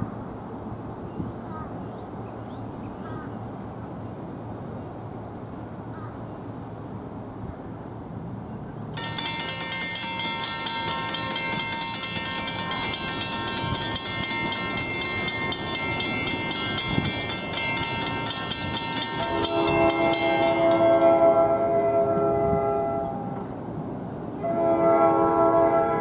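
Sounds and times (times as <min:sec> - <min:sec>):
crossing bell ringing: 0:09.0 - 0:23.5
train air horn chord: 0:18.6 - 0:23.5, 0:24.4 - 0:26.0.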